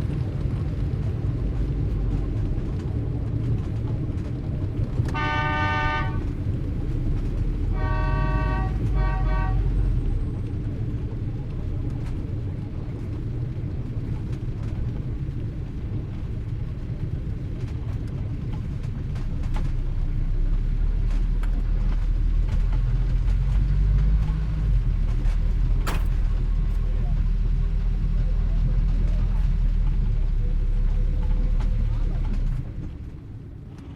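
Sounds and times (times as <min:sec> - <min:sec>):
street traffic rumbling: 0:00.0 - 0:33.9
car horns honking: 0:05.1 - 0:06.4, 0:07.5 - 0:10.1.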